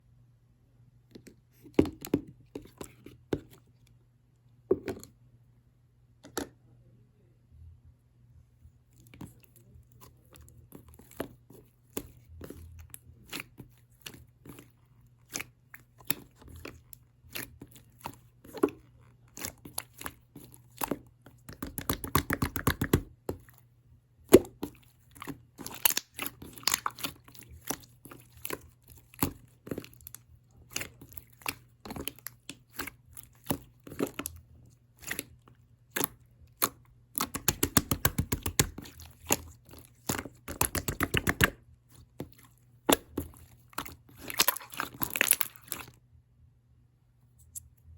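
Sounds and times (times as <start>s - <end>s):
faint low hum: 0.0s - 47.9s
crunchy scrapes: 24.4s - 46.0s.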